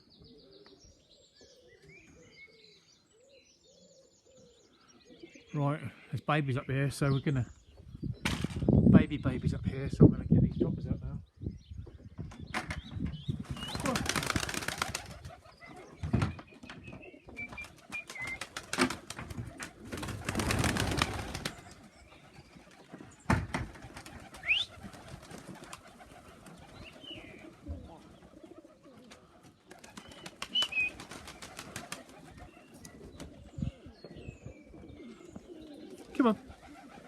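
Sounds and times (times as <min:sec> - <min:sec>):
pigeons cooing: 0:00.0 - 0:06.1, 0:13.3 - 0:37.0
loud rustling bursts: 0:13.4 - 0:15.4, 0:17.7 - 0:21.8.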